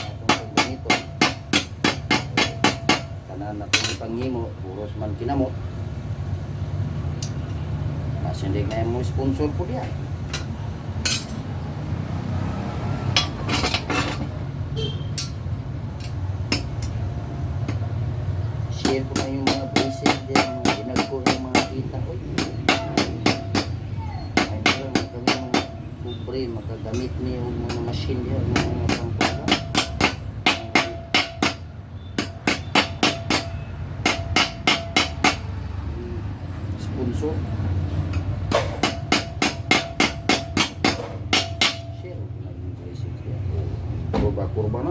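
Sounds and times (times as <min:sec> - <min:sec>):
hammer striking sheet metal: 0:00.0 - 0:04.0, 0:13.1 - 0:14.3, 0:18.8 - 0:23.8, 0:24.4 - 0:25.8, 0:27.7 - 0:35.5, 0:38.5 - 0:42.0.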